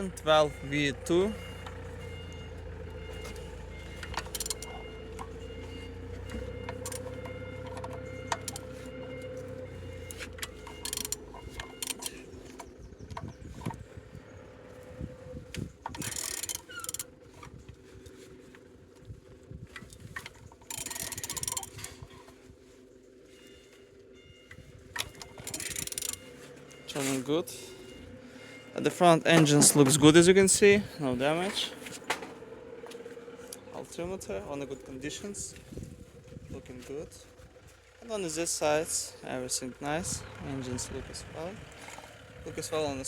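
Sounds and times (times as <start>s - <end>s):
engine rasping strokes: 0.0s - 43.0s
wrench ratchet and metal clicks: 4.2s - 4.7s, 10.4s - 12.3s, 15.9s - 17.1s, 20.6s - 21.9s, 25.0s - 26.2s.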